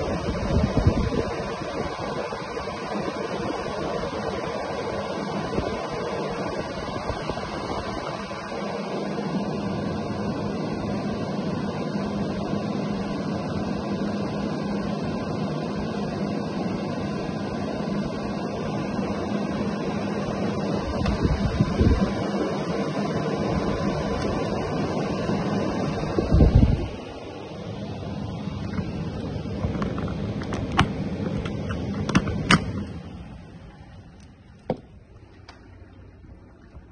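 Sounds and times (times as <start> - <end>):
air conditioner fan running: 0.0 - 36.9
low hum: 0.0 - 36.9
sharp knocks and clicks: 29.6 - 32.9.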